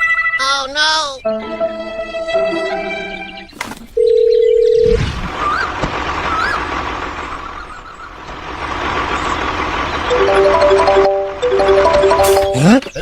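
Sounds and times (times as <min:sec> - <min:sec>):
electronic beep: 0:10.1 - 0:13.0.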